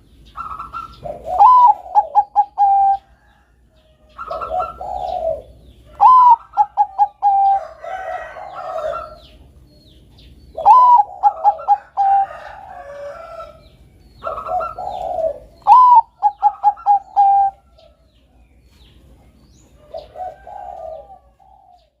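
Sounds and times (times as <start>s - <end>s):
dove song phrases: 0.0s - 22.0s
soft low dove coos: 0.8s - 3.3s, 4.0s - 9.4s, 14.2s - 18.0s, 19.2s - 22.0s.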